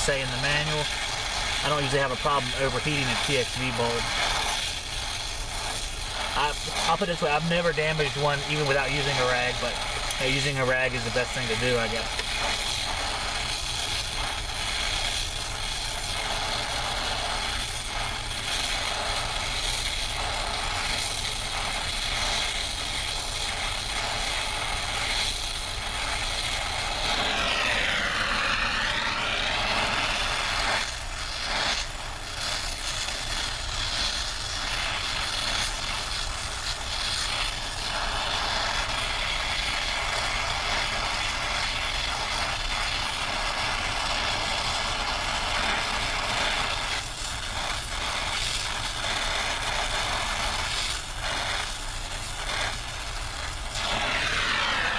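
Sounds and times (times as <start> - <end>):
wavering whine: 0.0 - 22.0, 22.9 - 31.9, 53.7 - 54.9
torch flame hissing: 0.0 - 54.9.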